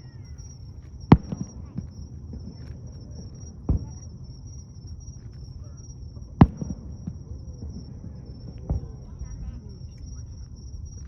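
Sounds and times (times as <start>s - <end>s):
fireworks bursting: 0.0s - 11.0s
steady high-pitched tone: 0.0s - 11.0s.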